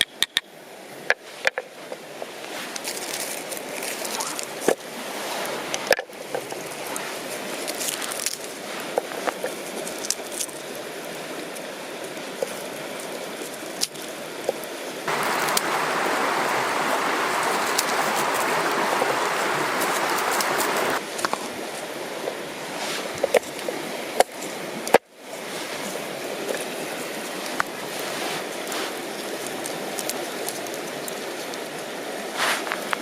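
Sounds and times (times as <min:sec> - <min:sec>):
river water running: 0:00.5 - 0:33.0
loud rushing noise: 0:15.1 - 0:21.0.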